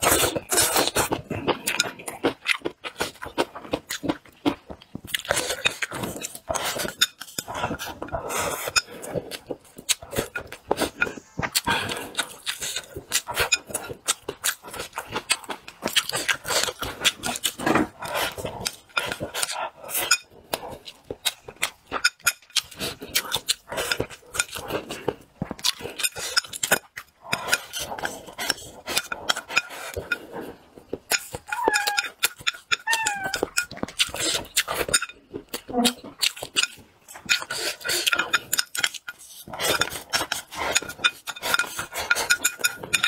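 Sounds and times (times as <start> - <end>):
chewing and lip smacking: 0.0 - 43.0
animal high calls: 31.5 - 32.1, 32.8 - 33.4.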